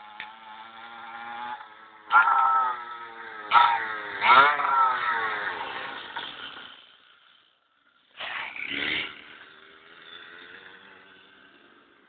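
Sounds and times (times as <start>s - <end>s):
motorbike engine riding off: 0.0s - 7.4s, 8.1s - 12.0s.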